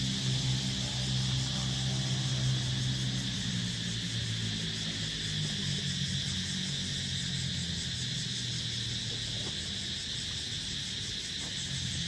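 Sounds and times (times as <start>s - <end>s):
insect chorus buzzing: 0.0s - 12.0s.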